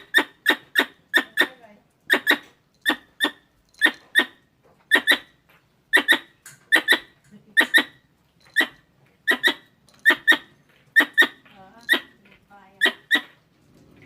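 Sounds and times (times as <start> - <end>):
squirrel chirping: 0.0 - 13.4.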